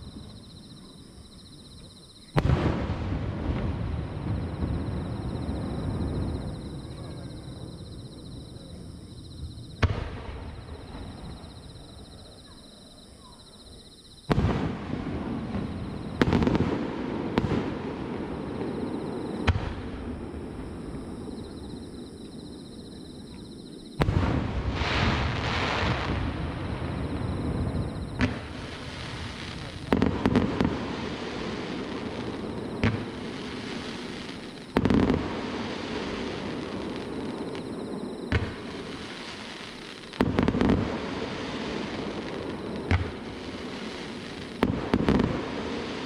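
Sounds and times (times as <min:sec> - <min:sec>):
fireworks booming with echo: 0:00.0 - 0:46.0
fireworks crackling hiss: 0:14.3 - 0:46.0.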